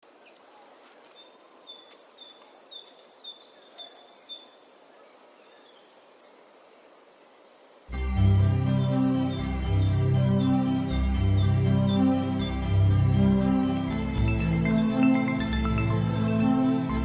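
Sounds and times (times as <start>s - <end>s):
bird chirping: 0.0s - 17.0s
faint background hiss: 0.0s - 17.0s
music: 7.9s - 17.0s.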